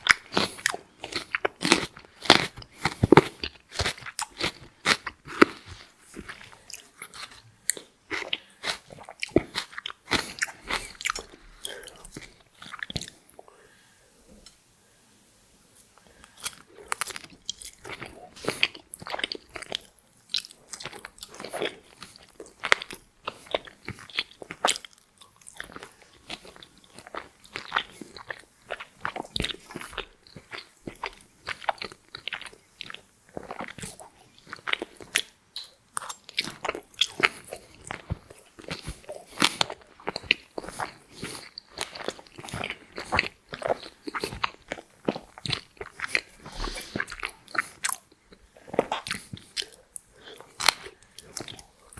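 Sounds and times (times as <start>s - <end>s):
chewing crunchy fries: 0.0s - 13.5s, 16.0s - 51.9s.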